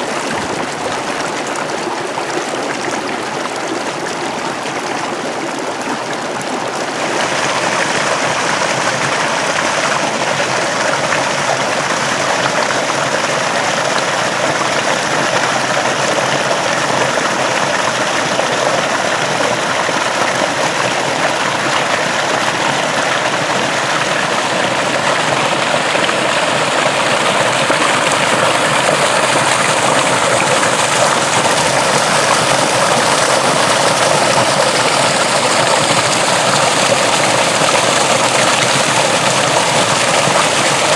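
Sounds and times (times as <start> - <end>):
water rushing along a ditch: 0.0 - 40.9.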